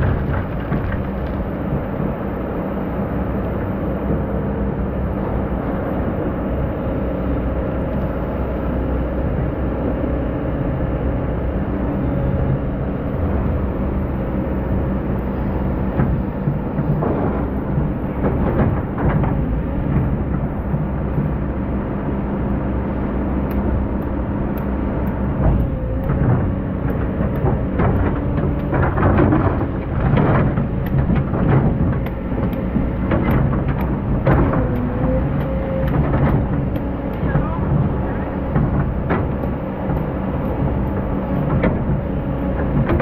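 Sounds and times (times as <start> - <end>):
diesel engine running: 0.0 - 43.0
metal clanks and rattles: 25.4 - 34.9.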